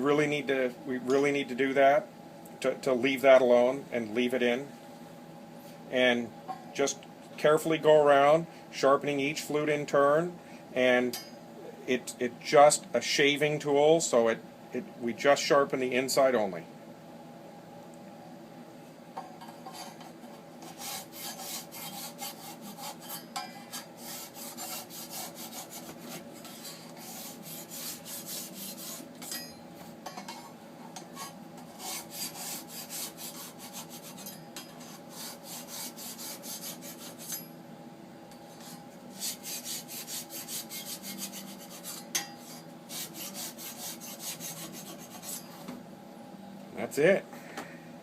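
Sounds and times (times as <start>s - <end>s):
faint steady hum: 0.0s - 48.0s
sharpening tool rasping on metal: 20.7s - 29.6s, 31.2s - 37.5s, 39.2s - 45.5s.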